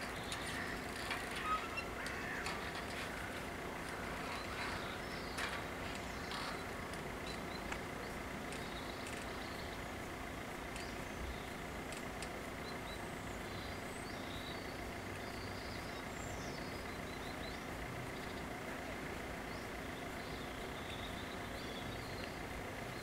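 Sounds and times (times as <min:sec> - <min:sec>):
low outdoor background hum: 0:00.0 - 0:23.0
small birds chirping: 0:00.0 - 0:23.0.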